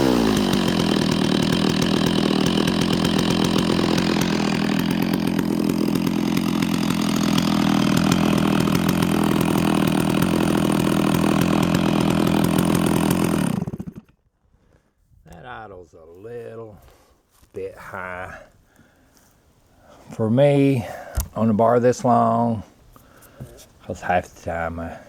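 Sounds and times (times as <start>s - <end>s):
chainsaw idling: 0.0s - 14.2s.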